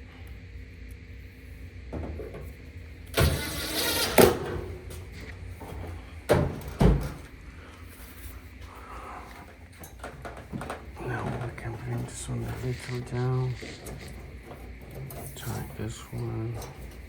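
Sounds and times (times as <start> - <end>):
power drill driving screw: 3.1 - 4.8.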